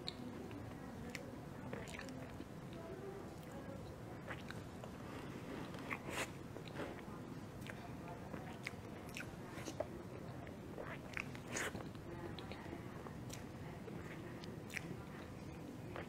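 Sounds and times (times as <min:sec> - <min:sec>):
wet chewing: 0:03.4 - 0:16.0.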